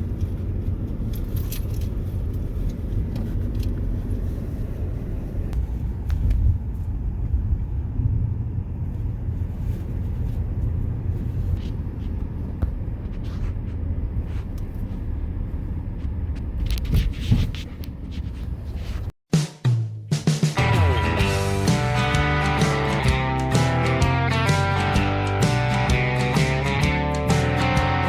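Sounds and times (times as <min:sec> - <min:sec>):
wind buffeting microphone: 0:00.0 - 0:19.1.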